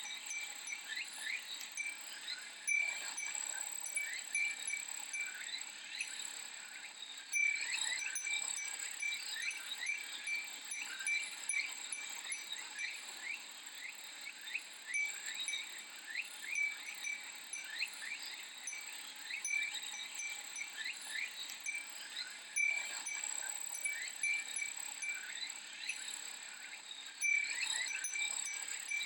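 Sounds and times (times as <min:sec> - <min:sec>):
wind chime ringing: 0:00.0 - 0:02.1, 0:02.7 - 0:06.1, 0:07.3 - 0:13.4, 0:14.9 - 0:26.1, 0:27.2 - 0:29.0
cicadas droning: 0:00.0 - 0:29.0
short chirping calls: 0:14.9 - 0:26.2.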